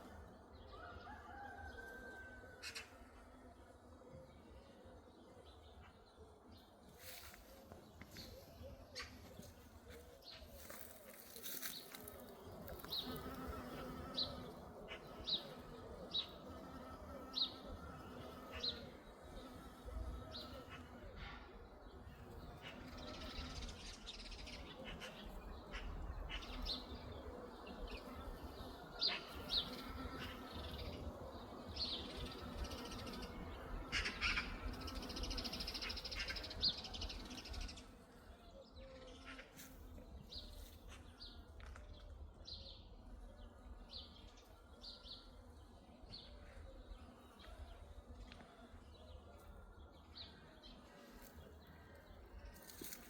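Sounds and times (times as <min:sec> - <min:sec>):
wild birds chirping and calling: 0:00.0 - 0:39.8.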